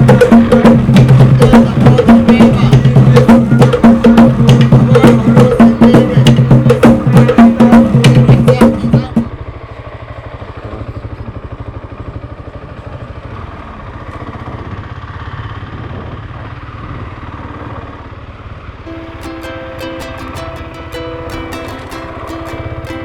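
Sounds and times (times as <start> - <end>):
plucked-string music: 0.0 - 9.3, 18.9 - 23.0
motorcycle engine running: 0.0 - 23.0
wind and road noise: 9.0 - 19.2.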